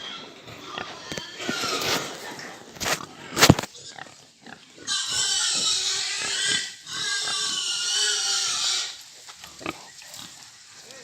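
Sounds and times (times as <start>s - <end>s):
pig squealing: 3.8s - 9.0s.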